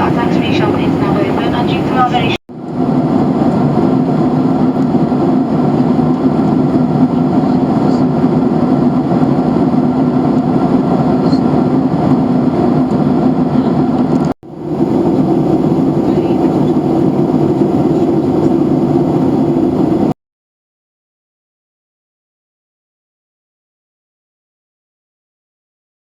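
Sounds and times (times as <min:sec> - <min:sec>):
airplane cabin airflow and engine noise: 0:00.0 - 0:20.2
low hum: 0:00.0 - 0:20.2.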